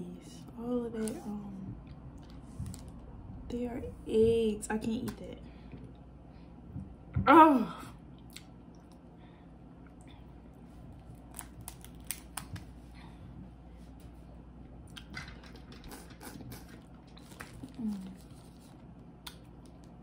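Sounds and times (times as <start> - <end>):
crawfish shells cracking: 11.2 - 12.6.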